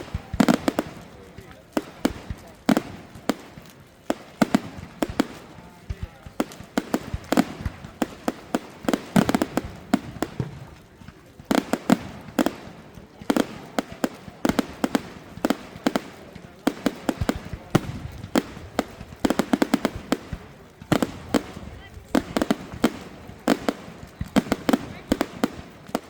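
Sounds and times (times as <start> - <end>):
fireworks bangs and cracks: 0.0 - 26.0.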